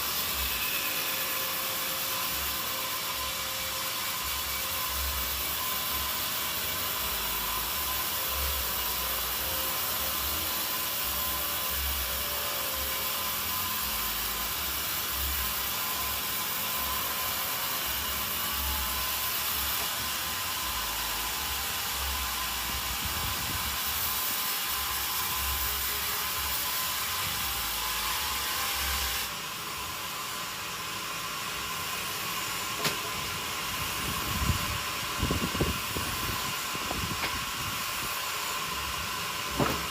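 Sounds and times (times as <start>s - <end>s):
sawmill machinery running: 0.0s - 39.9s
sharp knocks: 39.6s - 39.9s.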